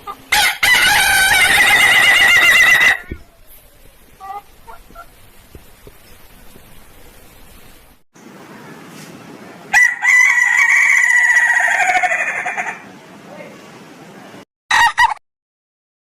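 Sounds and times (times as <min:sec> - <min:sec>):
rooster crowing with trilled crow: 0:00.1 - 0:03.2, 0:09.7 - 0:12.9, 0:14.7 - 0:15.2.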